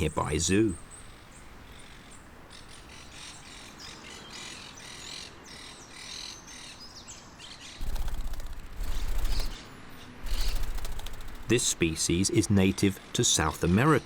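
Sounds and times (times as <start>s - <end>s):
loud rattling buzz with rumble: 7.8s - 9.6s, 10.2s - 12.0s
parakeets chattering: 7.8s - 9.6s, 10.2s - 12.1s.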